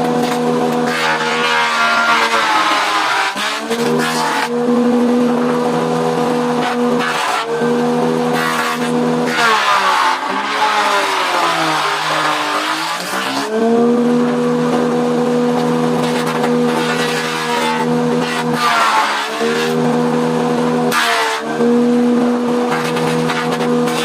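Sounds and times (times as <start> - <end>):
bandsaw blade rasping through wood: 0.0 - 4.8, 6.5 - 13.9, 15.6 - 20.0, 20.9 - 21.9, 22.6 - 24.0
bandsaw motor humming: 0.0 - 24.0.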